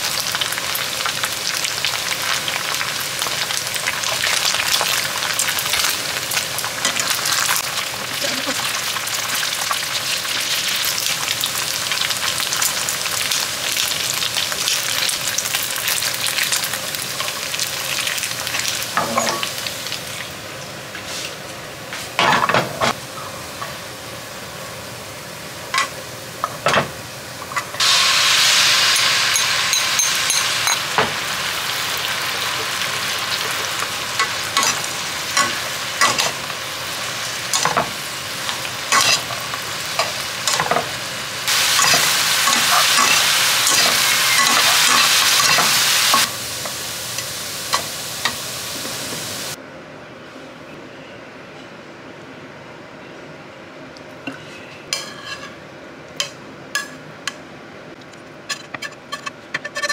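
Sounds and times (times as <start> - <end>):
food sizzling in hot oil: 0.0 - 20.4, 25.5 - 49.6.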